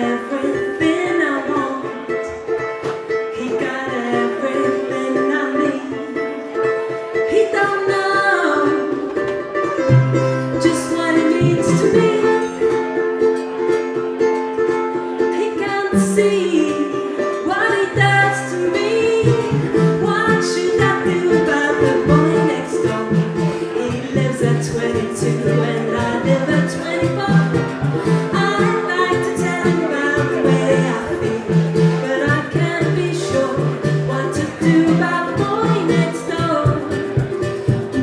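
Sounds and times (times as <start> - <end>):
woman singing: 0.0 - 12.8, 15.2 - 38.0
live band with plucked strings: 0.0 - 38.0
walking bass line: 18.0 - 38.0.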